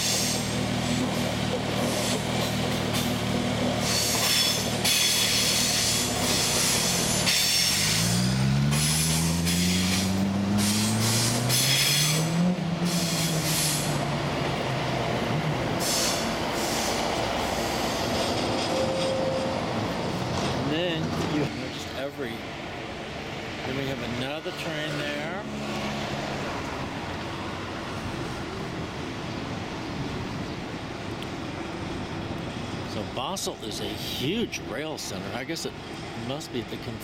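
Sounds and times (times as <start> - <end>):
high wheel squeal: 0.0 - 0.6, 3.8 - 14.0, 15.8 - 19.8
train wheels rumbling on rails: 0.0 - 37.0.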